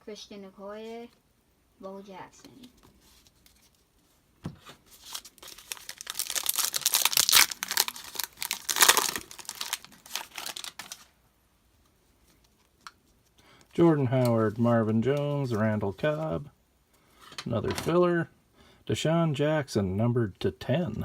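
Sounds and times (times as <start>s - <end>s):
wrapper crinkling and tearing: 4.9s - 11.1s.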